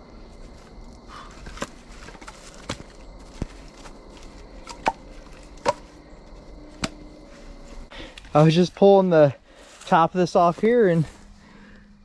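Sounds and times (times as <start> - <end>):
wood knocking and cracking: 1.4 - 3.6, 4.6 - 5.9.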